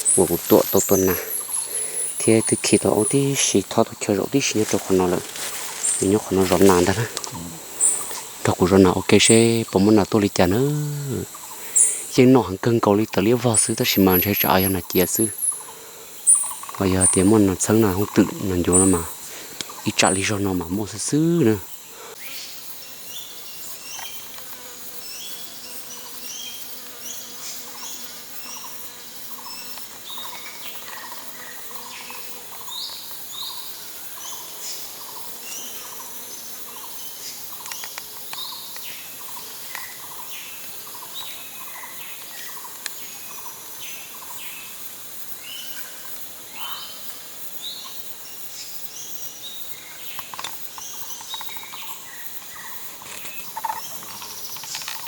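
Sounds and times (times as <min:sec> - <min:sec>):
quick chirping calls: 0:00.0 - 0:12.2
insects droning: 0:00.0 - 0:55.0.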